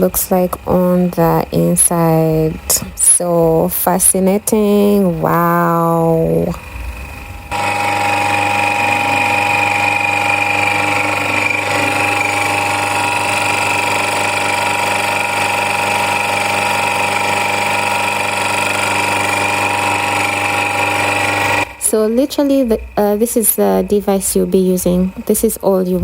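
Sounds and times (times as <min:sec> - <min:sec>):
pressure washer running: 0:06.2 - 0:25.3.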